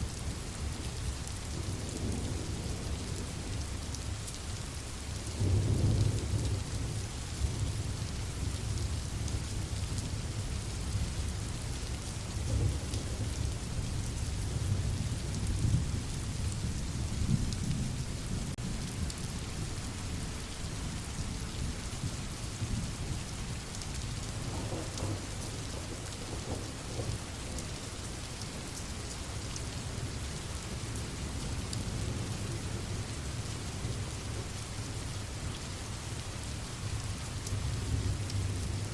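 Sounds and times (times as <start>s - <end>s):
rain falling: 0.0s - 38.9s
rolling thunder: 24.4s - 27.6s.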